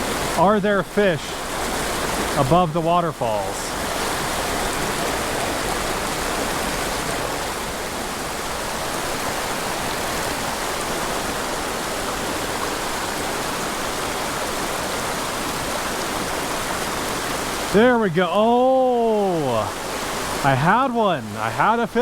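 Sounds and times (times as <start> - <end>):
creek rushing over rocks: 0.0 - 22.0.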